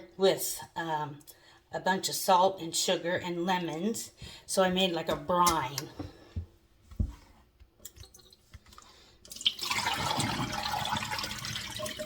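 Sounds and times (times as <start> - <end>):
running water: 9.3 - 12.0.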